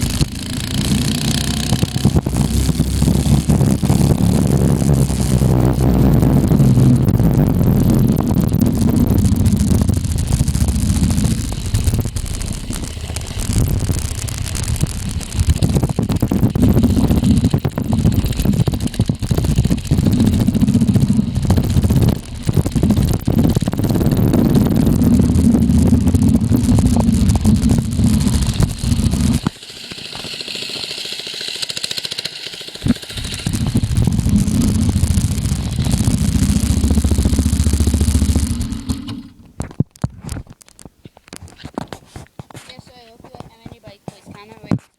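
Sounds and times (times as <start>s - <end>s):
wind on microphone: 0.0s - 29.5s, 32.8s - 40.4s
clicks: 0.0s - 30.4s
mini bike engine running: 0.0s - 39.8s.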